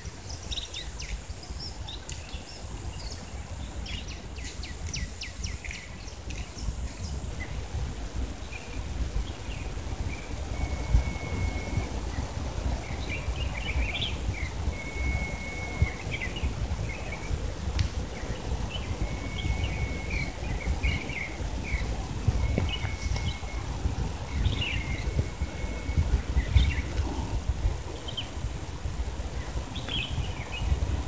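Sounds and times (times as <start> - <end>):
low outdoor rumble: 0.0 - 31.0
songbird singing: 0.0 - 31.0.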